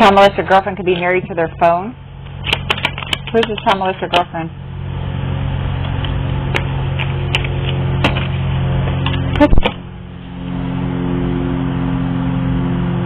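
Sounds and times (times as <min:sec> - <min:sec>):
low mechanical hum: 0:00.0 - 0:13.0
sharp clicks and taps: 0:02.5 - 0:04.3.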